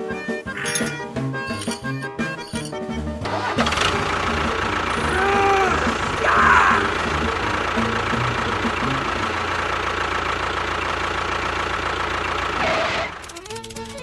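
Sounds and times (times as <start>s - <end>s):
engine idling: 3.2s - 14.0s.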